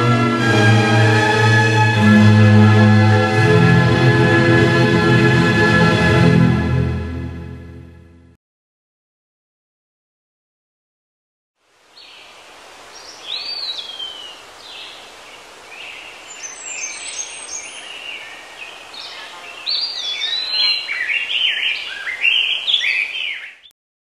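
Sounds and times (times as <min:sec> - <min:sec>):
steady outdoor hiss: 0:11.6 - 0:23.7
birds chirping and singing: 0:13.0 - 0:23.7.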